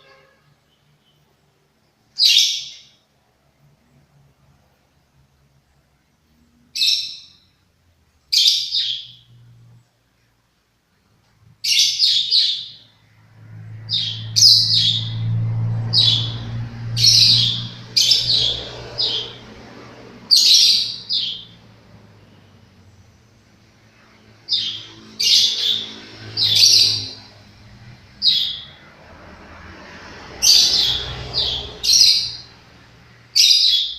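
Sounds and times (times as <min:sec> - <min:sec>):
lovebird chirping: 0:02.1 - 0:03.0, 0:06.7 - 0:07.5, 0:08.3 - 0:09.4, 0:11.6 - 0:12.9, 0:13.7 - 0:19.5, 0:20.2 - 0:22.6, 0:24.0 - 0:27.5, 0:28.1 - 0:28.9, 0:33.3 - 0:33.9.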